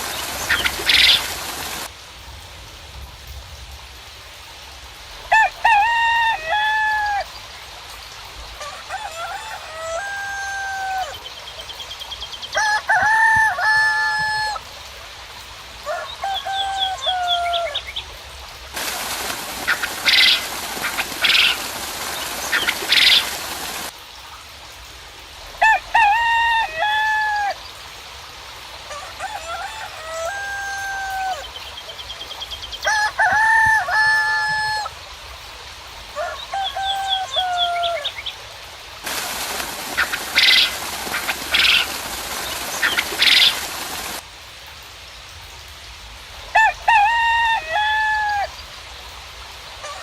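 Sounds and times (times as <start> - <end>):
steady hiss like rain: 0.0 - 50.0
roosters crowing: 5.3 - 7.3, 8.6 - 11.2, 12.5 - 14.7, 15.8 - 17.9, 25.6 - 27.6, 28.9 - 31.6, 32.8 - 35.0, 36.2 - 38.2, 39.1 - 44.2, 46.5 - 48.6.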